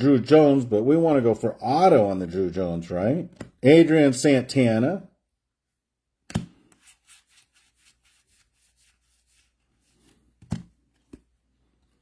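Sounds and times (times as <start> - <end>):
cards rubbing together: 6.6 - 10.4.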